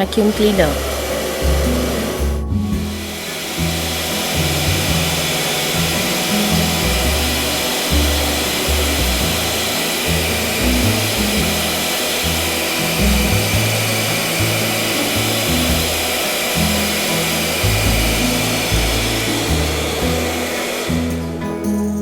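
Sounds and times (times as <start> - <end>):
vacuum cleaner hissing: 0.0 - 21.6
background music: 0.0 - 22.0.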